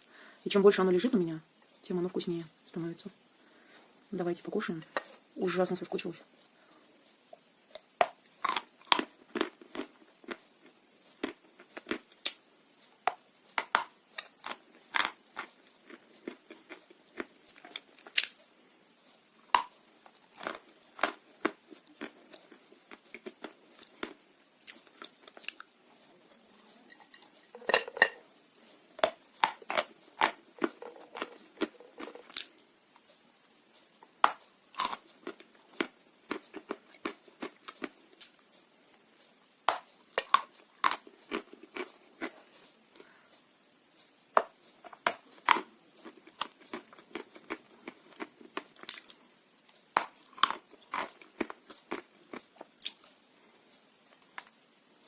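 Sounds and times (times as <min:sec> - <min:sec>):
chewing dry clay crunches: 0:07.7 - 0:12.4, 0:13.6 - 0:18.4, 0:19.4 - 0:25.7, 0:29.0 - 0:32.5, 0:34.2 - 0:38.5, 0:39.7 - 0:42.4, 0:44.9 - 0:49.2, 0:50.0 - 0:53.1.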